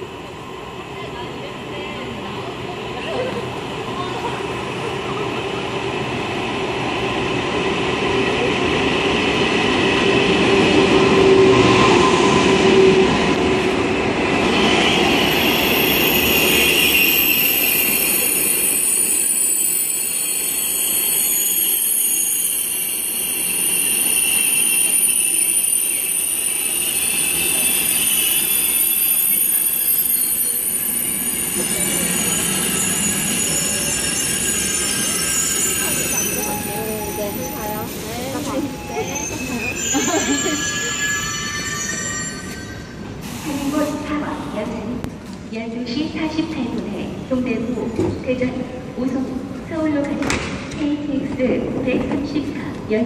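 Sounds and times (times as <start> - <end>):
braking wheels squealing: 14.5 - 43.0.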